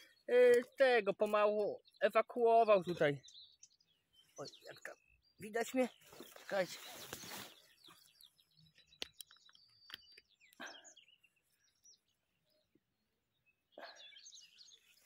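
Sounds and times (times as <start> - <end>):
faint songbird chirps: 0.0 - 15.0
short rustle: 6.0 - 7.7.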